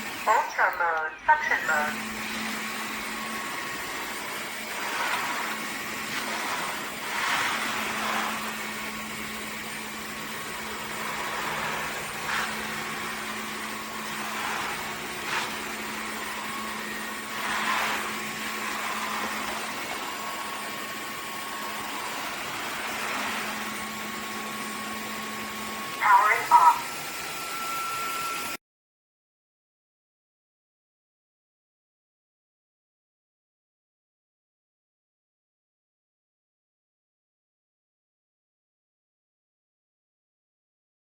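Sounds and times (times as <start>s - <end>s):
vacuum mop motor hum: 0.0s - 28.6s.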